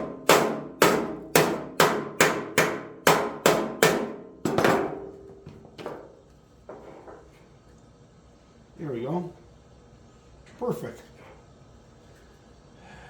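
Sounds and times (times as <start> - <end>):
hammer striking sheet metal: 0.0 - 6.0.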